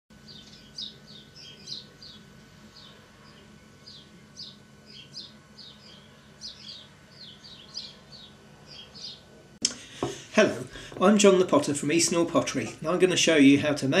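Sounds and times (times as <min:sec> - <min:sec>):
small birds chirping: 0:00.1 - 0:09.3
low steady hum: 0:00.1 - 0:14.0.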